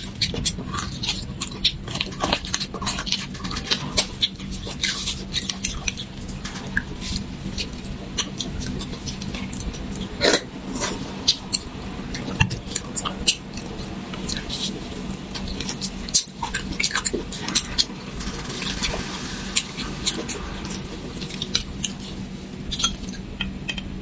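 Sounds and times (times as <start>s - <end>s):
wet sucking and slurping: 17.3s - 22.8s.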